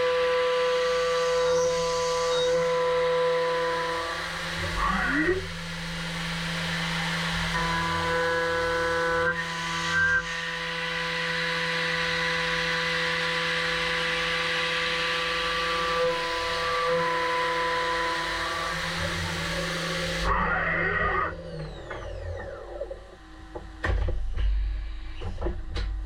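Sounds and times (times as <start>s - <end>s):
milling machine whine: 0.0s - 25.9s.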